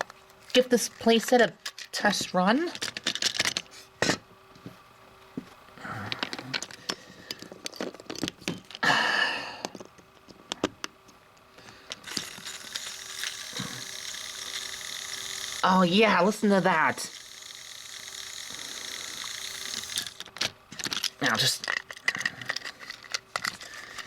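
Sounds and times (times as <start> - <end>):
plastic clicks and rattles: 2.8 - 3.7, 20.0 - 24.0
toy motor and gears whirring: 11.9 - 24.0.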